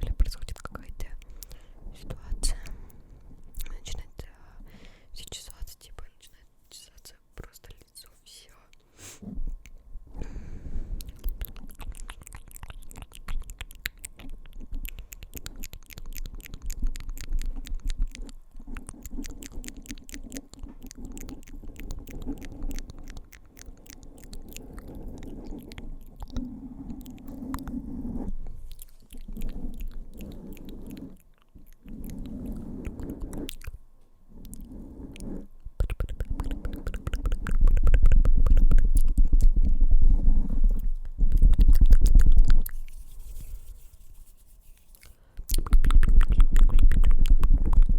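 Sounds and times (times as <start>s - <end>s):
low muffled rumble: 0.0s - 4.6s, 16.3s - 44.1s
wet mouth clicks and smacks: 11.0s - 27.7s, 28.7s - 33.8s, 35.8s - 39.7s, 40.7s - 44.1s, 44.7s - 47.9s.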